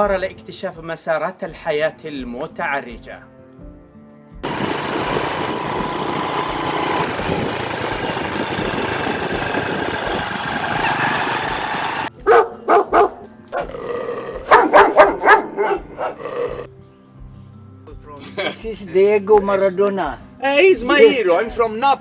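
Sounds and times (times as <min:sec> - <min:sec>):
dog barking: 0:12.2 - 0:13.8, 0:14.5 - 0:16.6.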